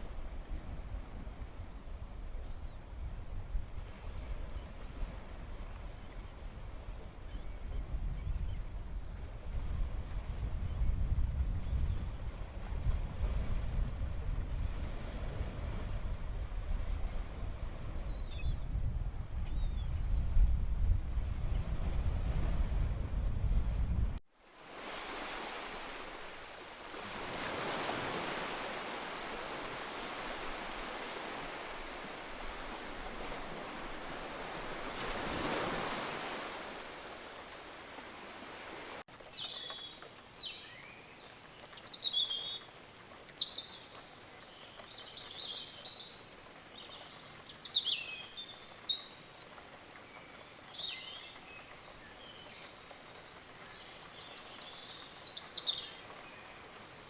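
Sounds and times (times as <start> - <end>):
sea surf washing in: 21.9 - 40.2
birds singing and chirping: 39.3 - 56.9.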